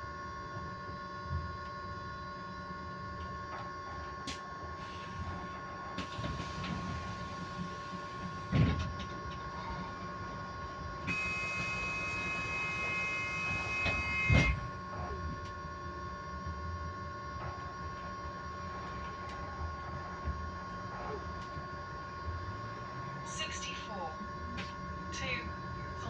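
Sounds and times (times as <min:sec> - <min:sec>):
electric bus whine: 0:00.0 - 0:26.0
low running rumble: 0:03.9 - 0:26.0
loud knocks from bus body: 0:08.5 - 0:09.0.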